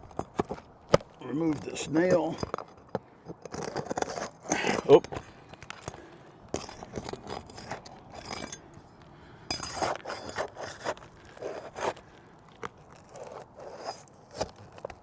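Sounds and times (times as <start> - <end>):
tool scraping under shingles: 0.0 - 15.0.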